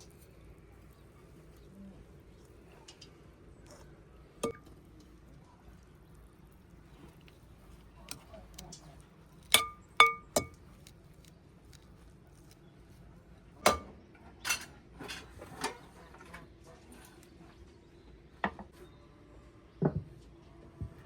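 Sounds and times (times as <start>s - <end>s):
dishes and cutlery clinking: 9.5s - 10.6s, 13.7s - 15.9s.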